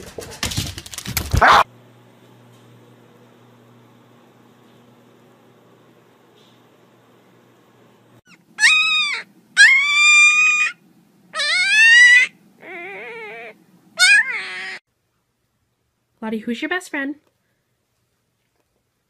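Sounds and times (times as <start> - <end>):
puppy whining: 8.3 - 14.8.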